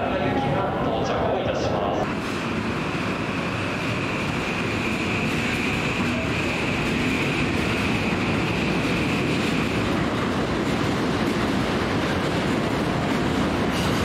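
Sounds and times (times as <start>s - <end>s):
electric train running slowly: 0.0s - 14.0s.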